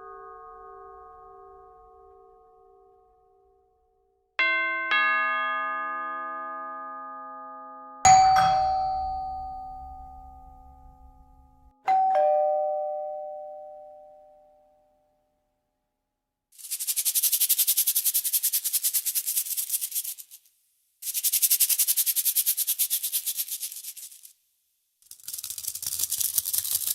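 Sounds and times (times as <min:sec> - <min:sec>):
bell-like chime tones: 0:04.4 - 0:14.9.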